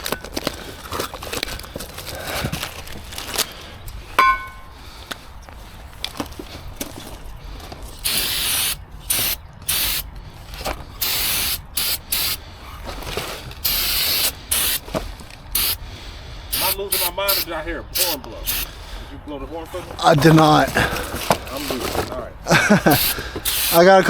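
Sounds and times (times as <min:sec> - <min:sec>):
aerosol spray hiss: 0:08.0 - 0:10.1, 0:11.0 - 0:12.4, 0:13.6 - 0:14.9, 0:15.6 - 0:15.8, 0:16.5 - 0:18.7, 0:22.7 - 0:24.0.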